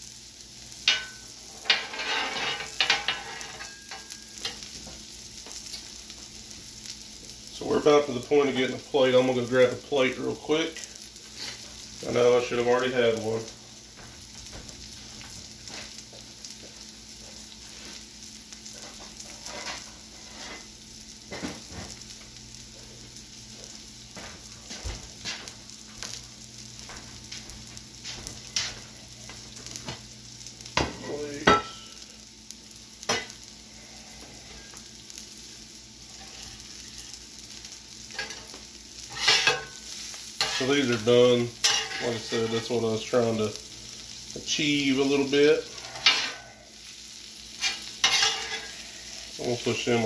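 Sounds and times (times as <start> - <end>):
frying crackles and pops: 0.0 - 50.0
vegetables and sausage sizzling on griddle: 0.0 - 50.0
metal spatula scraping griddle: 0.9 - 4.6, 18.7 - 20.7, 36.1 - 37.2, 38.1 - 38.5, 39.1 - 39.8, 40.4 - 42.8, 45.4 - 46.8, 47.5 - 49.4.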